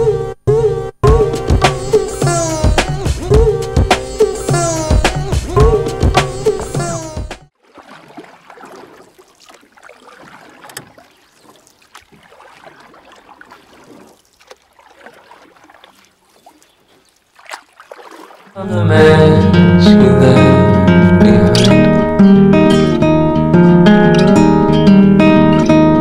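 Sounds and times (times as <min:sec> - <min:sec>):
water rushing along hull: 0:07.5 - 0:19.0.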